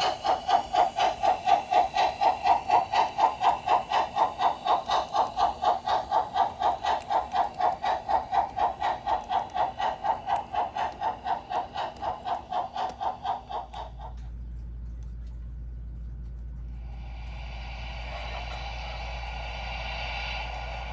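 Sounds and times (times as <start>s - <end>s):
model locomotive steam chuffing: 0.0s - 14.4s, 16.7s - 20.9s
low steady hum: 13.9s - 20.9s.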